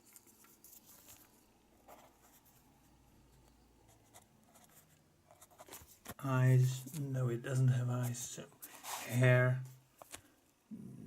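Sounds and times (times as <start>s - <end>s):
pen scratching on paper: 3.9s - 6.2s.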